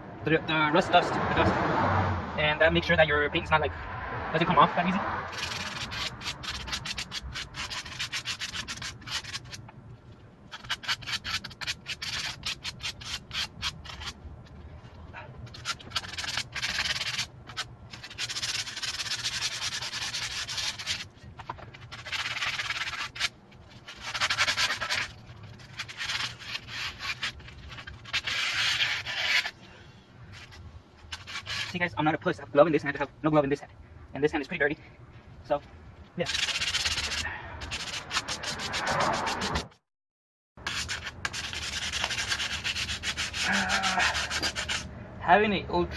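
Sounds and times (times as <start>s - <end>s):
sandpaper scrubbing metal: 4.4s - 9.6s, 10.5s - 14.2s, 15.4s - 29.6s, 30.3s - 32.0s, 36.2s - 39.8s, 40.6s - 44.9s.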